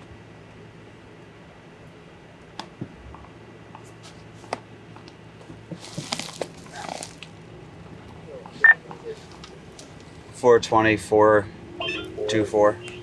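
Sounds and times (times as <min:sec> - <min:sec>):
low steady hum: 0:00.0 - 0:13.0
rustling and crinkling: 0:03.9 - 0:07.4, 0:08.0 - 0:10.2.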